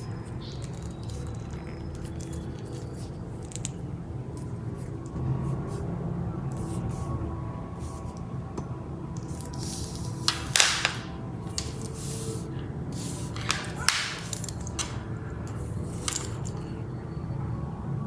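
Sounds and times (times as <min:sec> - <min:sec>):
steady low hum: 0:00.0 - 0:18.0
rustling and handling noise: 0:07.8 - 0:08.3, 0:09.1 - 0:16.8.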